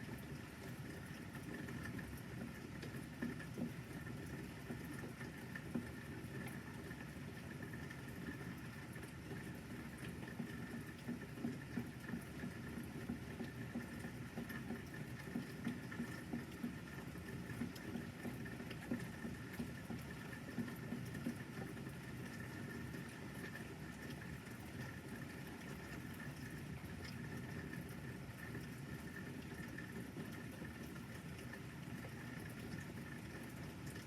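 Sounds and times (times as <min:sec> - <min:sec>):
rain pattering: 0:00.0 - 0:34.0.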